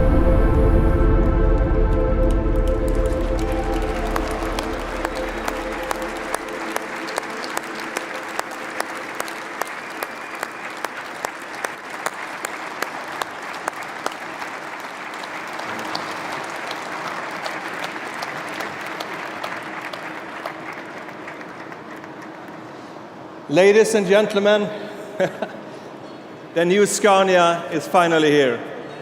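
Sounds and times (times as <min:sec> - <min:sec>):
music: 0:00.0 - 0:12.1
audience applauding: 0:02.3 - 0:23.5.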